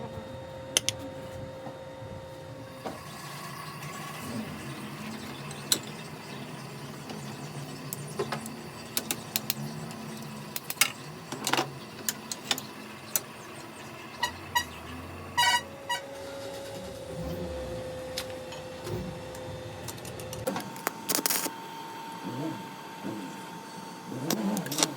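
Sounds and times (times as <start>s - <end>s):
workshop hum: 0.0s - 24.9s.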